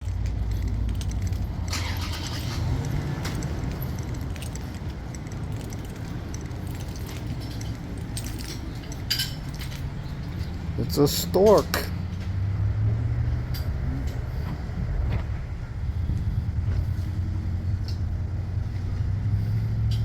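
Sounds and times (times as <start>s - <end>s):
steady low rumble: 0.0s - 20.0s
metallic jingling: 0.1s - 12.2s.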